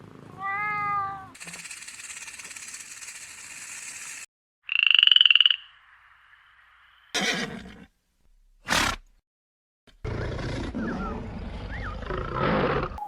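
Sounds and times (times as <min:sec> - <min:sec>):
high rapidly pulsing animal trill: 0:01.4 - 0:04.3.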